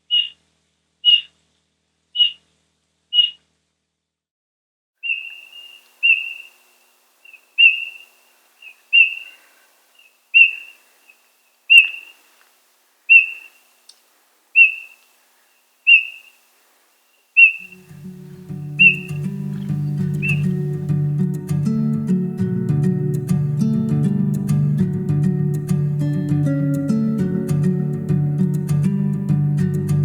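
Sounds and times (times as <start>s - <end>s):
bullfinch piping call: 0.1s - 0.4s, 1.0s - 1.3s, 2.2s - 2.4s, 3.2s - 3.4s, 5.0s - 12.3s, 13.1s - 13.7s, 14.6s - 15.1s, 15.9s - 16.4s, 17.4s - 20.9s
low background music: 17.8s - 30.0s.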